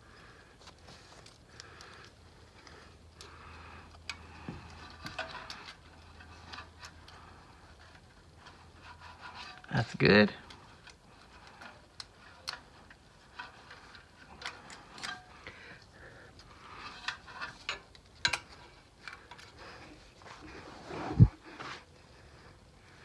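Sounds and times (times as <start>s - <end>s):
hand tools clicking on metal: 10.4s - 19.6s.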